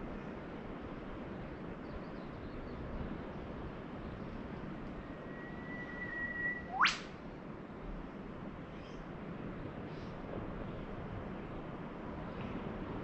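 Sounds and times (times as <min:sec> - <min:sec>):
distant surf hiss: 0:03.1 - 0:13.0
bird whistle call: 0:05.1 - 0:07.1.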